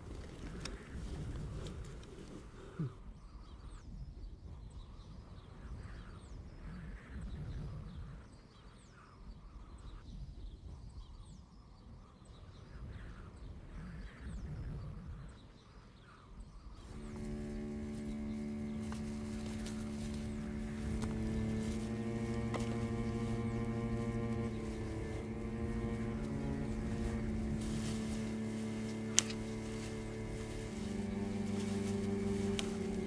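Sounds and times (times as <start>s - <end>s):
low wind-like rumble: 0.0s - 33.0s
small birds chirping: 0.0s - 33.0s
steady low hum: 16.8s - 33.0s.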